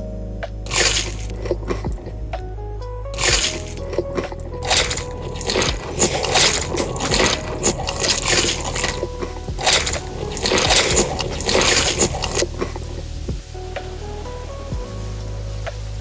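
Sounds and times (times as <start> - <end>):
soft background music: 0.0 - 16.0
wet chewing and smacking: 0.7 - 1.8, 3.2 - 4.0, 4.6 - 12.5.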